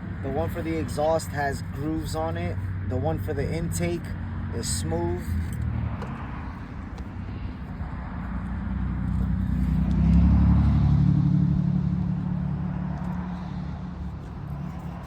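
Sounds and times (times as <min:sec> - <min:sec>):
vehicle engine passing by: 0:04.5 - 0:15.0.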